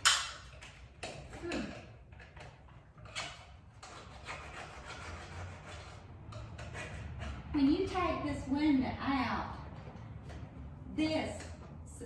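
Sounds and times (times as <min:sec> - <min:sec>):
hand tool scraping wood: 0:00.0 - 0:07.9.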